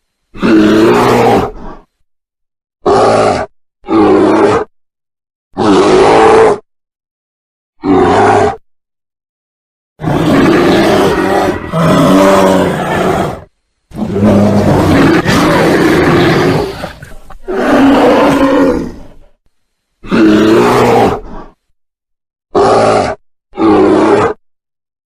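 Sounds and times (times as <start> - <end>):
bear roaring and growling: 0.4 - 2.0, 2.8 - 4.7, 5.6 - 6.7, 7.8 - 8.6, 10.0 - 19.4, 20.0 - 21.6, 22.5 - 24.4.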